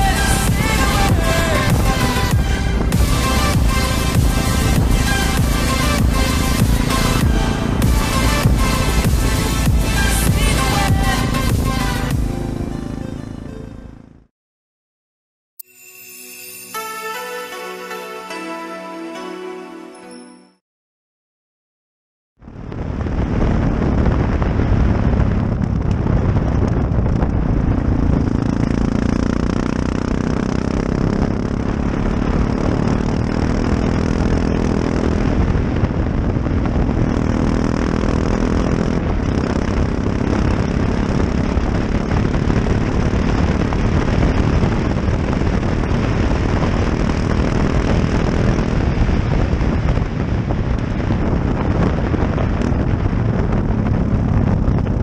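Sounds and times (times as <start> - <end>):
motorcycle engine running: 0.0 - 14.3, 22.4 - 55.0
wind rush: 22.4 - 55.0.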